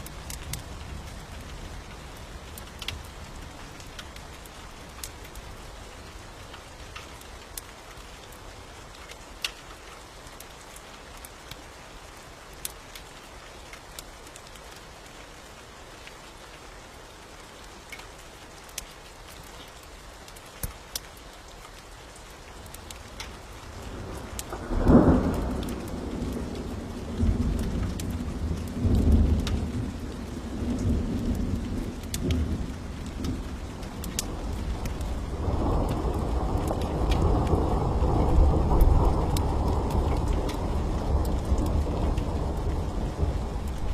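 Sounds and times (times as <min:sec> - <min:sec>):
raindrops ticking: 0:00.0 - 0:43.9
steady rain: 0:00.0 - 0:43.9
thunder clap and rumble: 0:23.7 - 0:43.9.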